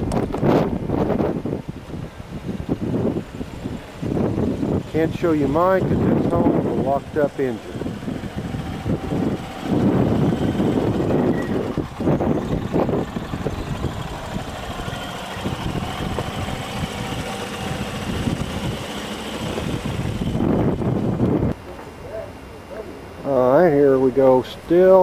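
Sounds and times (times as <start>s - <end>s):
engine idling: 1.8s - 21.6s.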